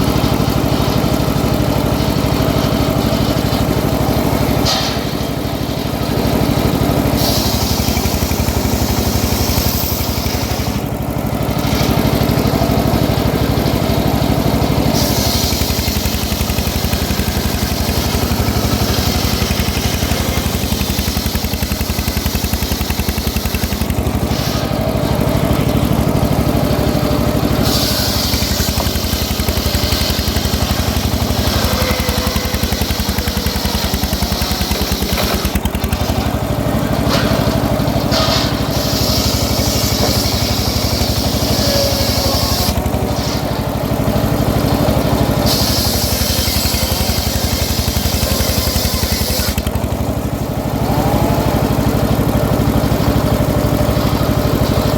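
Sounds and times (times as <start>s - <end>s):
engine drone: 0.0s - 54.9s
saw blade cutting wood: 2.7s - 10.9s, 14.1s - 24.8s, 27.5s - 36.4s, 37.0s - 49.9s.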